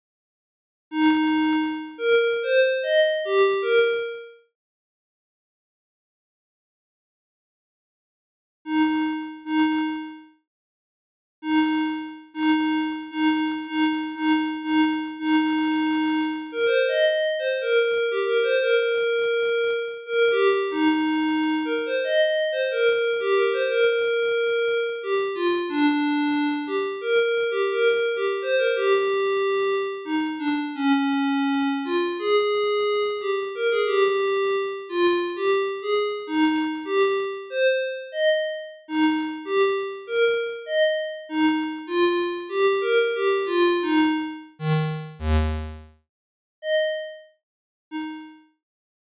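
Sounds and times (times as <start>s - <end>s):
synthesizer melody: 44.6s - 45.8s.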